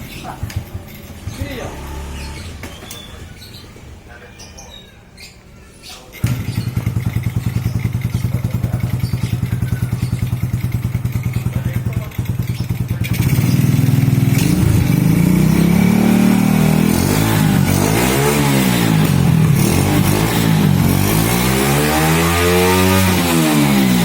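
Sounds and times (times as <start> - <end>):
motorcycle engine revving: 0.0 - 3.6, 6.2 - 24.0.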